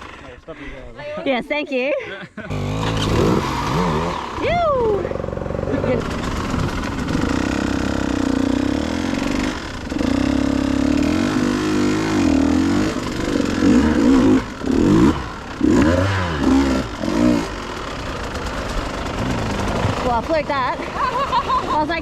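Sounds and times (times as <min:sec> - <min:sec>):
dirt bike engine revving: 0:00.0 - 0:00.4, 0:02.4 - 0:22.0.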